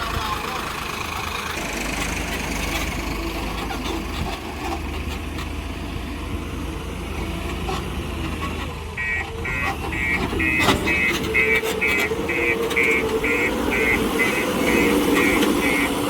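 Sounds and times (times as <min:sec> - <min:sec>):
diesel engine running: 0:00.0 - 0:16.0
reversing alarm beeping: 0:09.0 - 0:16.0.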